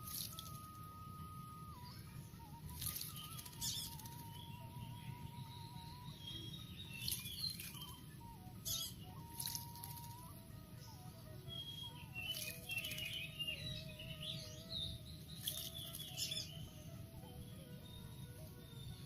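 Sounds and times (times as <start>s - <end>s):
faint background music: 0.0s - 19.0s
bird wings splashing in water: 2.8s - 4.1s, 9.4s - 10.2s.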